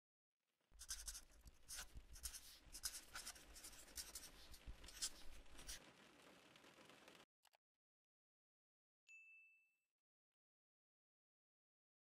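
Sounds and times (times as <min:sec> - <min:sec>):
pen scratching on paper: 0:00.8 - 0:05.8.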